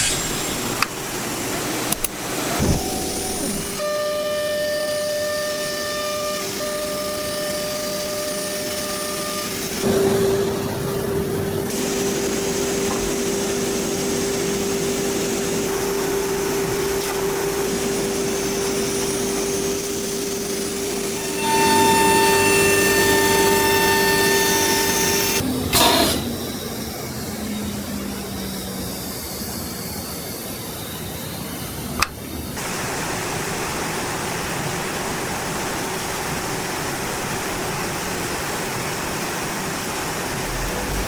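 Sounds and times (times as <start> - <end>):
machine whine: 0.0 - 41.0
steady machine noise: 0.0 - 41.0.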